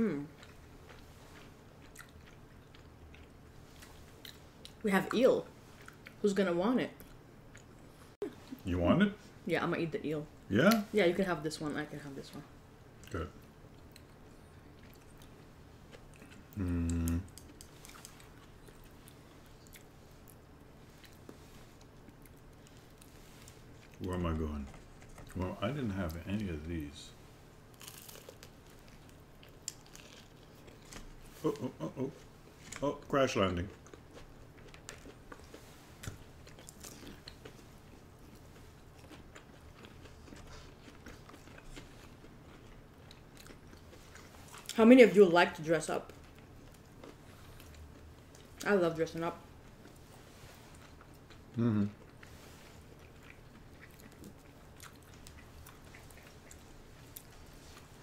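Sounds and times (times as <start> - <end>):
quiet chewing: 0.0 - 4.8, 5.6 - 6.2, 7.0 - 8.7, 13.0 - 26.5, 27.7 - 44.8, 46.0 - 58.0
person humming mmm: 16.5 - 17.4, 51.6 - 52.0.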